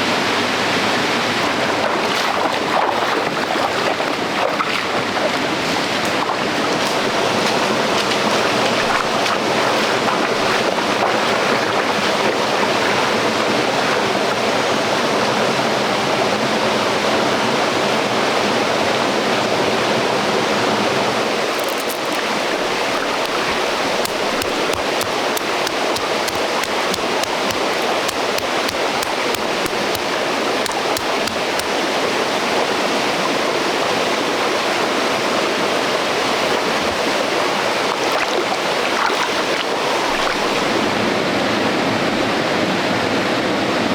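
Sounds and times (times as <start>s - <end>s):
stream water rushing: 0.0s - 43.9s
light sharp ticks: 21.6s - 31.8s.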